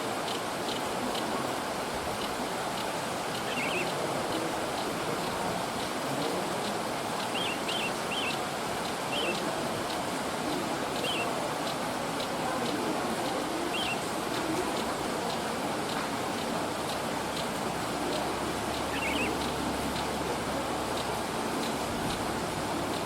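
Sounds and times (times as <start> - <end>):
bird twittering calls: 2.8 - 5.4, 7.2 - 11.8, 13.6 - 15.4, 16.9 - 20.2.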